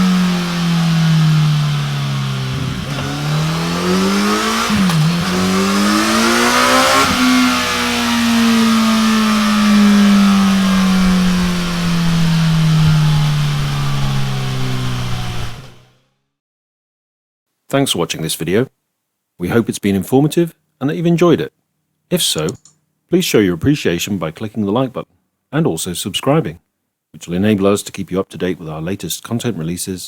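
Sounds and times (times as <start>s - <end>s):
motorcycle engine revving: 0.0s - 16.1s.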